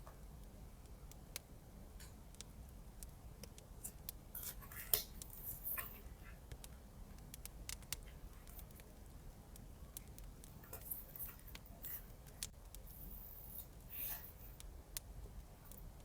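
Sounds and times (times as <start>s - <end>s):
small clicks and taps: 0.0s - 13.8s.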